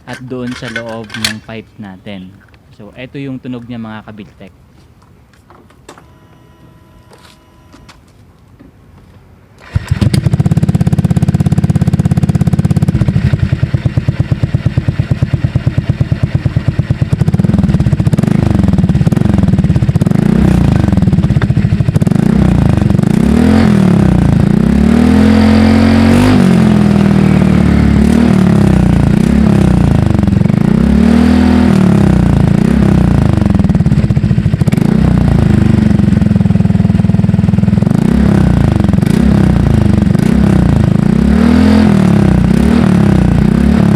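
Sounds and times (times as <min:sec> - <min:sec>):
scooter engine idling and revving: 0:09.6 - 0:43.9.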